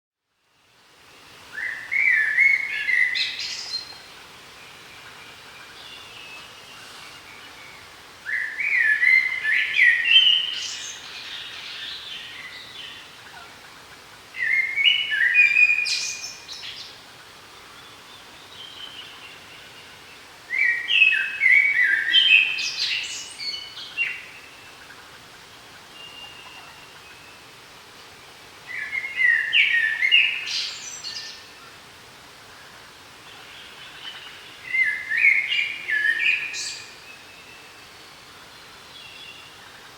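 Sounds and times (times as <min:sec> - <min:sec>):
faint steady hiss: 0:00.2 - 0:39.9
songbird singing: 0:01.2 - 0:31.8, 0:32.4 - 0:39.9.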